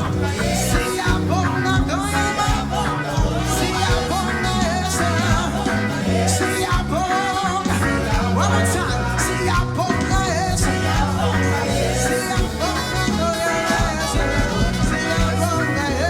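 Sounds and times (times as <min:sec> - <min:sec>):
person singing lead: 0:00.0 - 0:16.0
worship band playing: 0:00.0 - 0:16.0.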